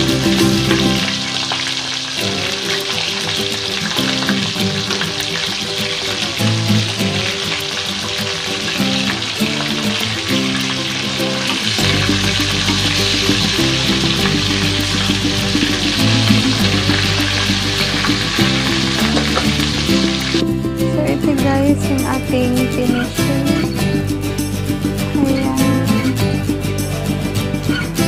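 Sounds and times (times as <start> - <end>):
vegetables sizzling in hot oil: 0.0 - 20.4
background music: 0.0 - 28.0.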